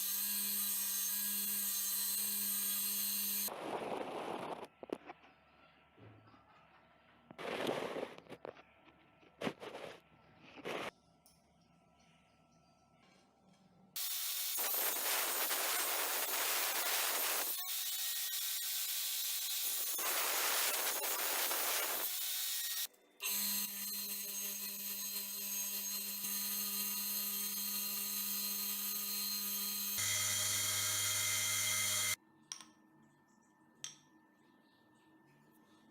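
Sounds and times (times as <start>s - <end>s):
power tool motor whining: 28.6s - 32.2s.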